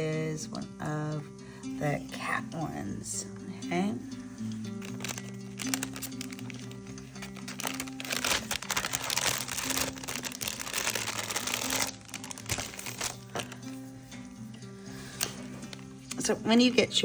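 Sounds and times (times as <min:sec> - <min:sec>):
soft background music: 0:00.0 - 0:17.0
paper crinkling and rustling: 0:04.8 - 0:14.0, 0:15.0 - 0:16.0.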